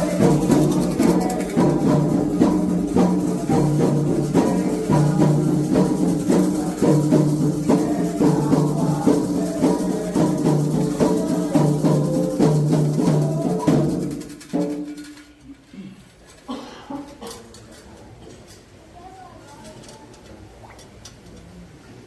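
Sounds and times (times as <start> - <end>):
shaken rattles: 0.0 - 16.5
drums: 0.0 - 16.6.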